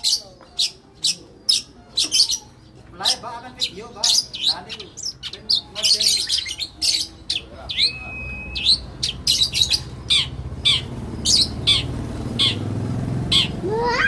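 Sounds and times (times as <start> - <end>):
lovebirds chirping: 0.0 - 14.0
bird whistle: 6.2 - 12.6.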